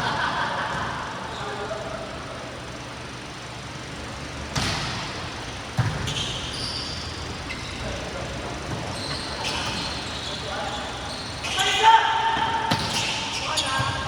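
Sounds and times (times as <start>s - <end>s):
sneakers squeaking on court: 4.5s - 14.0s.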